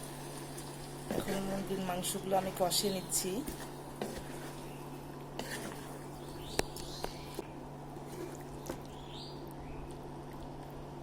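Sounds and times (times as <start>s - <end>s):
spatula scraping in a pan: 2.7s - 4.8s, 5.4s - 6.3s.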